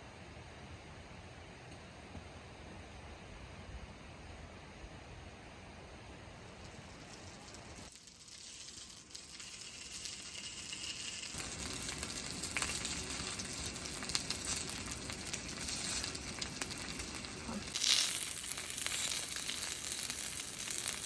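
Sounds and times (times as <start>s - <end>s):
food sizzling in a pan: 6.4s - 21.0s.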